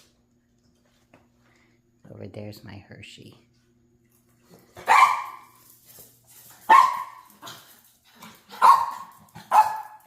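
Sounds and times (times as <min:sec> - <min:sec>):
dog barking: 0:04.8 - 0:05.5, 0:06.7 - 0:07.3, 0:08.5 - 0:10.0.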